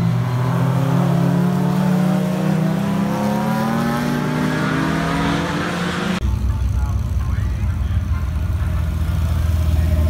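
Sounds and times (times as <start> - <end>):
car engine speeding up: 0.0 - 6.2.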